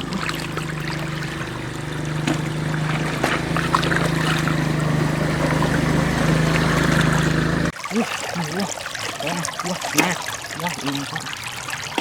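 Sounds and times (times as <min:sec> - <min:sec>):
small engine humming: 0:00.0 - 0:07.8
water trickling and splashing: 0:00.0 - 0:12.0.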